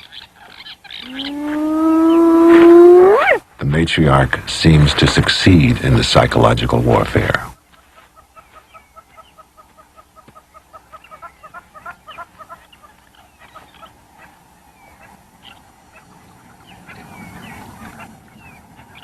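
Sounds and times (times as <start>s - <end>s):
hyena squeals and whoops: 1.0s - 3.4s.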